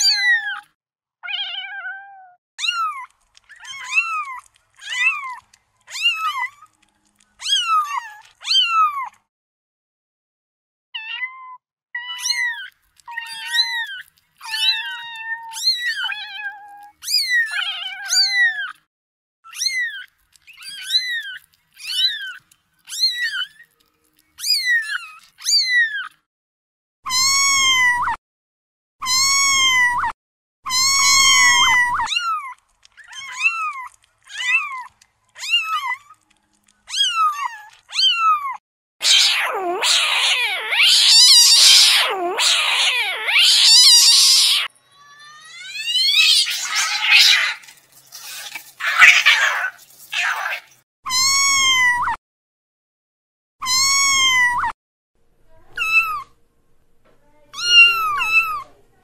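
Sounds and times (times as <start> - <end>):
kittens mewing: 1.3 - 6.8, 12.0 - 18.8, 27.1 - 28.2, 29.0 - 52.2, 53.6 - 54.8, 55.7 - 56.4, 57.5 - 58.7
kitten squalling: 2.6 - 6.8, 7.4 - 9.1, 12.0 - 18.8, 19.5 - 23.7, 24.4 - 26.1, 27.1 - 28.2, 29.0 - 52.2, 53.6 - 54.8, 55.6 - 56.3, 57.5 - 58.7.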